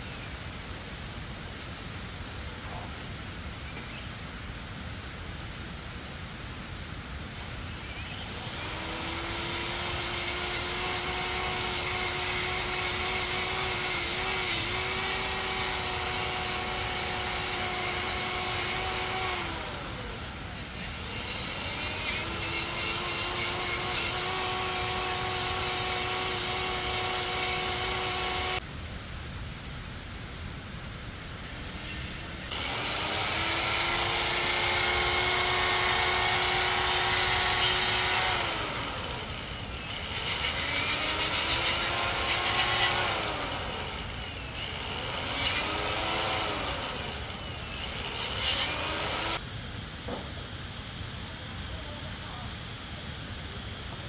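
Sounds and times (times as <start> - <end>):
steady hiss: 0.0 - 54.0
power tool motor whine: 7.8 - 28.6, 31.8 - 49.4.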